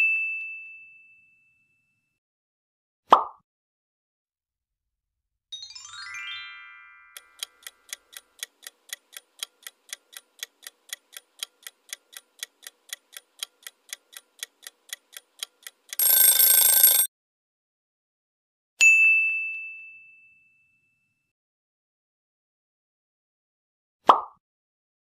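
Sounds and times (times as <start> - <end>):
countdown timer ticking: 7.2 - 17.1
bell-like ding: 18.8 - 21.3.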